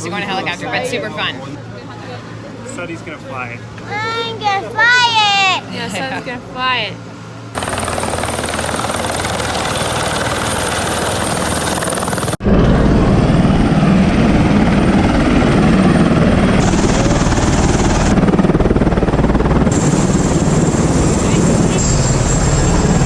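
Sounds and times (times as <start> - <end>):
helicopter rotor: 5.7 - 23.0.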